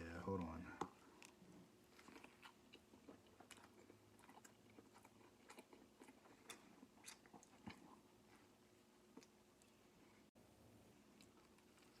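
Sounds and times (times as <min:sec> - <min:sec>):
chewing crispy fried chicken: 0:00.4 - 0:09.9, 0:11.0 - 0:12.0.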